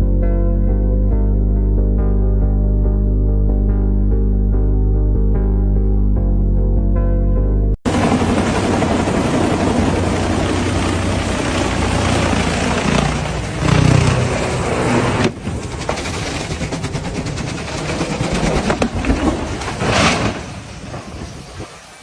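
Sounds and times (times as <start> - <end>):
helicopter rotor and engine: 7.9 - 18.9.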